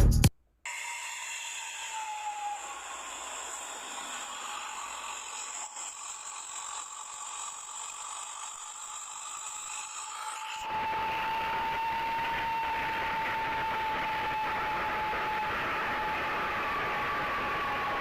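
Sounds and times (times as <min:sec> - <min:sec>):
bus exhaust whistling whine: 0:10.6 - 0:18.0.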